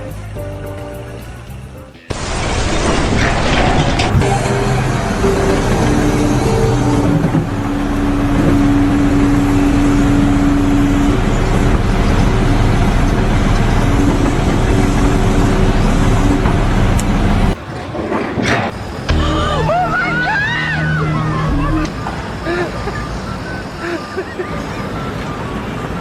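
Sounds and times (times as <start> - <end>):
heavy vehicle engine running: 0.0 - 17.6.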